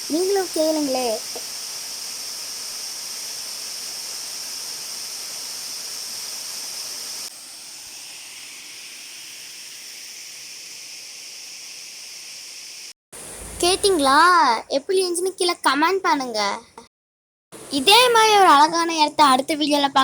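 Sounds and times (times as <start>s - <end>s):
waterfall rushing: 13.2s - 14.2s.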